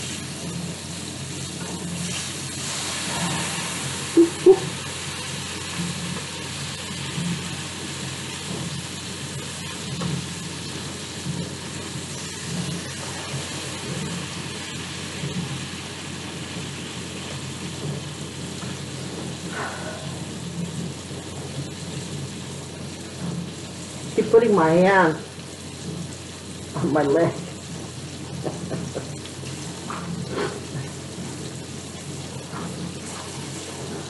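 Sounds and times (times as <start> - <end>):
steak frying in hot oil: 0.0 - 34.0.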